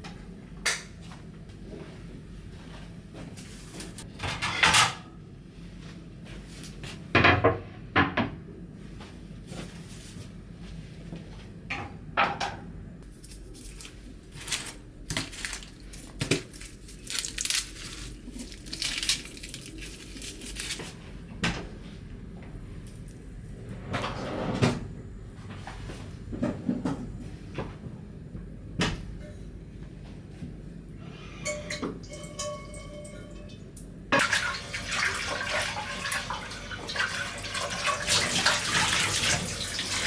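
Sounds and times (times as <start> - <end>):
dishes and utensils clinking: 31.3 - 33.6.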